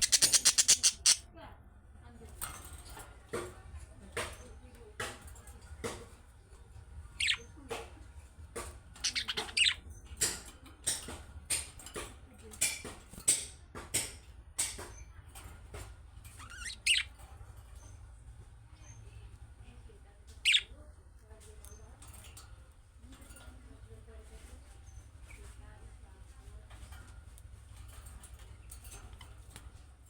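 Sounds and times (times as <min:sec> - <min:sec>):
budgerigars chirping and squawking: 0:00.0 - 0:01.2, 0:07.1 - 0:07.6, 0:08.9 - 0:10.4, 0:16.3 - 0:17.9, 0:20.4 - 0:20.8.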